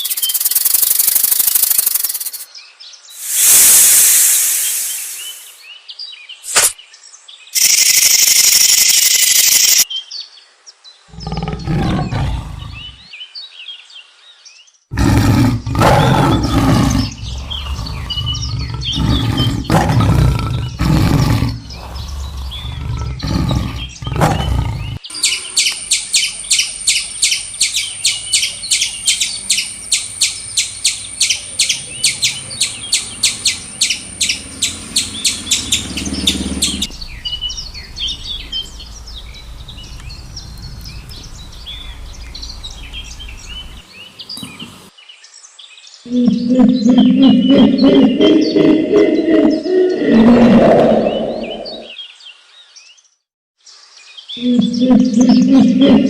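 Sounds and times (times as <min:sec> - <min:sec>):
fast high chirps: 0:00.0 - 0:02.4, 0:03.2 - 0:05.6, 0:07.6 - 0:09.8
low heavy roaring calls: 0:11.1 - 0:13.0, 0:14.9 - 0:25.6, 0:28.5 - 0:43.8, 0:46.1 - 0:51.9, 0:54.4 - 0:56.0.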